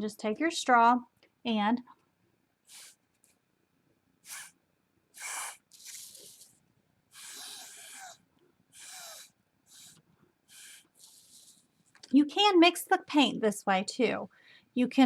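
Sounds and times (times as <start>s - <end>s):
breath blown through a straw: 2.7s - 3.0s, 4.2s - 4.6s, 5.2s - 6.5s, 7.1s - 11.6s.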